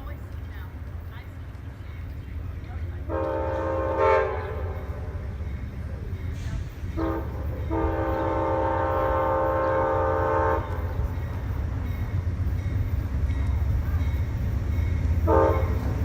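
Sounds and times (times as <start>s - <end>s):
low rumble of train: 0.0s - 16.0s
train horn blasts: 3.1s - 5.2s, 6.9s - 11.2s, 15.0s - 16.0s.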